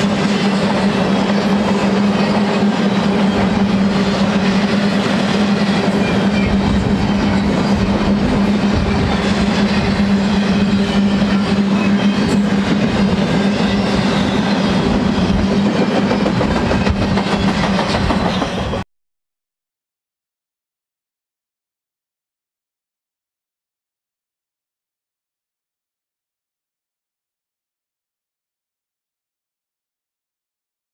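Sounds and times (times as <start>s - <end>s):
train wheels clacking over rail joints: 0.0s - 18.8s.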